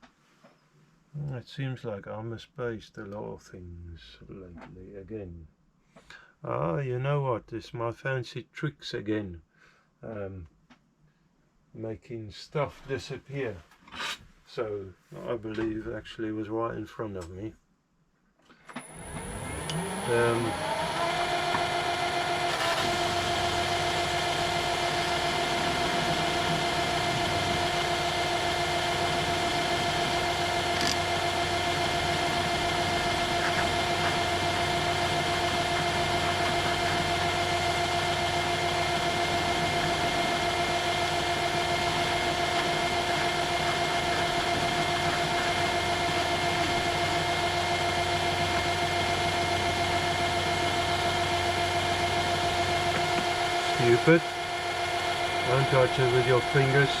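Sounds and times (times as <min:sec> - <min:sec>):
workshop machine motor hum: 0:18.8 - 0:57.0.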